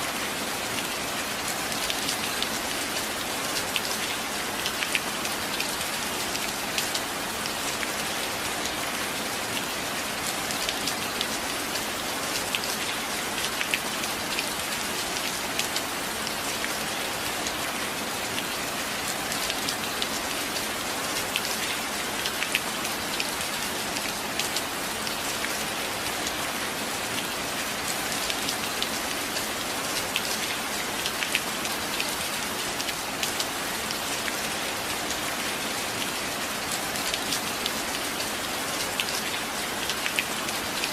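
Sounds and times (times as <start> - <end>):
rain with sharp drop ticks: 0.0 - 40.9.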